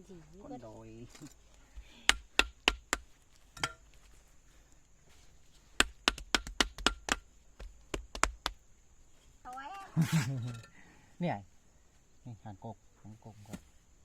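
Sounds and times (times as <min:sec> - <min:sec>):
sharp chopping strikes: 0:02.0 - 0:03.8, 0:05.8 - 0:08.6.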